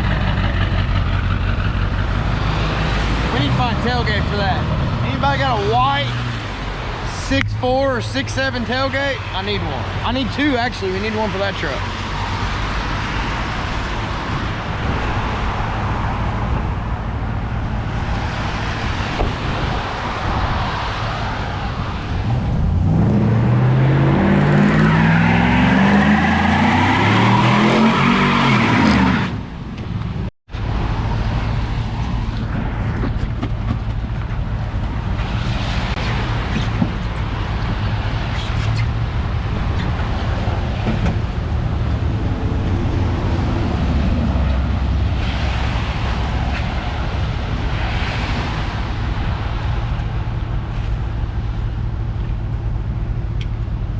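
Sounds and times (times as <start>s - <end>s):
engine revving: 0.0s - 10.2s, 22.2s - 29.3s
vehicle engine and road noise: 0.0s - 53.9s.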